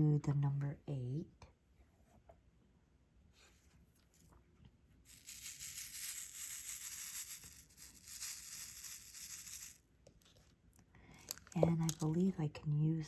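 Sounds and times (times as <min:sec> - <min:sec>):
plastic bag crinkling: 0:11.1 - 0:12.2.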